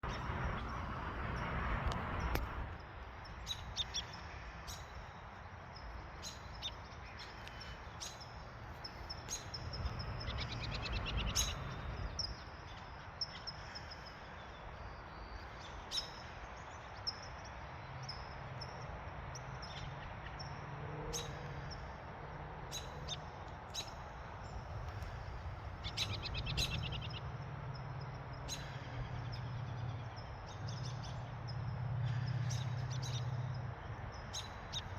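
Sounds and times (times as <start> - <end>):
songbirds chirping: 0.0 - 34.9
low steady background rumble: 19.3 - 34.9.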